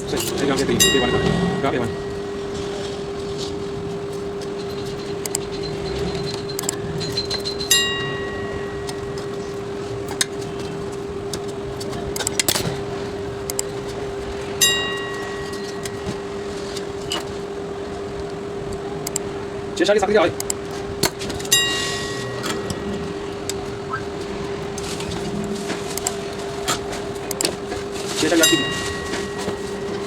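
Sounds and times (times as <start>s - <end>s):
steady hum: 0.0s - 30.0s
sharp metallic clinks: 0.2s - 3.5s, 21.4s - 24.0s
small clicks and taps: 20.4s - 21.5s.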